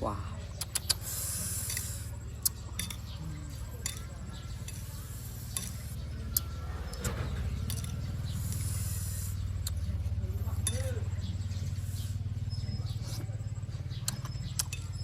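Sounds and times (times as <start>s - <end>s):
steady low hum: 0.0s - 15.0s
fruit crunching while chewing: 0.5s - 4.2s, 14.0s - 15.0s.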